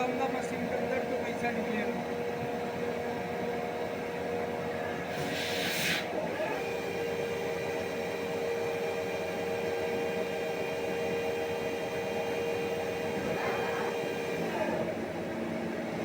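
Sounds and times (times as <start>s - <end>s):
lathe whining: 3.8s - 16.0s
brief hiss: 5.1s - 6.1s.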